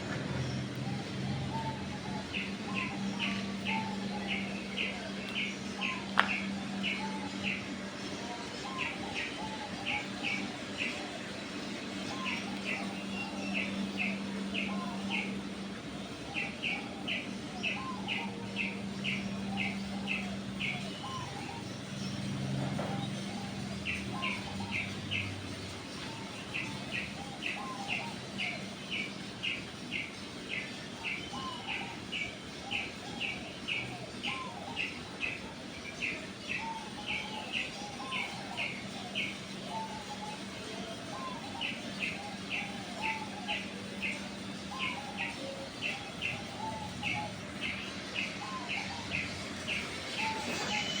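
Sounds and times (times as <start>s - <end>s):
birds chirping: 0.0s - 51.0s
steady low hum: 0.0s - 51.0s.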